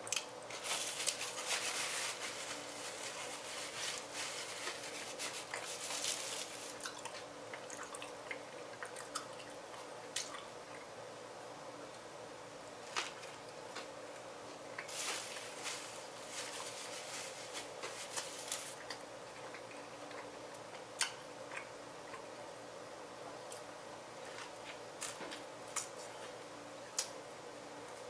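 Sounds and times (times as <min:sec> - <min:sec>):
faint steady hum: 0:00.0 - 0:28.0
person chewing wetly: 0:06.6 - 0:10.9.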